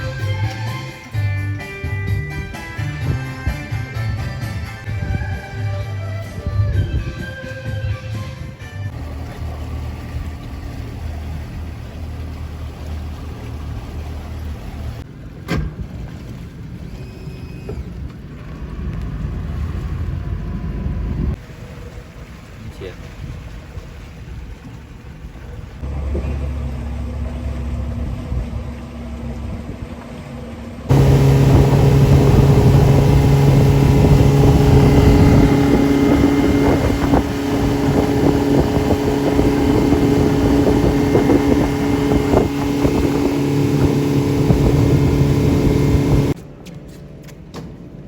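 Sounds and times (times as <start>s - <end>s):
engine humming: 8.9s - 21.4s, 25.3s - 48.0s.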